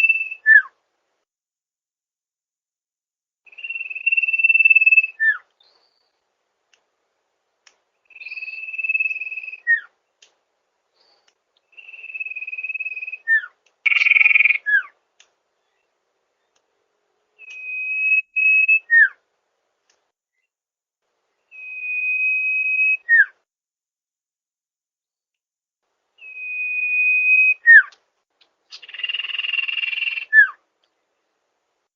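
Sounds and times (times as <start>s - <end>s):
bird whistling call: 0.0s - 0.7s, 3.5s - 6.0s, 8.1s - 9.9s, 11.7s - 14.9s, 17.4s - 19.2s, 21.5s - 23.4s, 26.2s - 28.0s, 28.7s - 30.6s.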